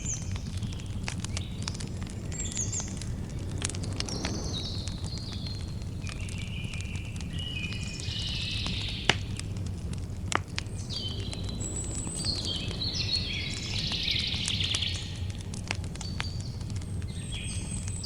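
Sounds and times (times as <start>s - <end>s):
songbird singing: 0.0s - 9.4s, 10.6s - 15.4s, 16.0s - 18.0s
campfire crackling: 0.0s - 18.0s.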